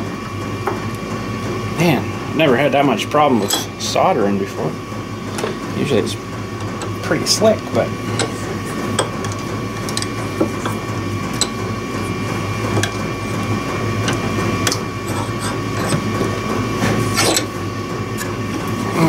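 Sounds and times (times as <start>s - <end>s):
electrical hum: 0.0s - 19.0s
tools and wire clicking: 9.0s - 10.8s.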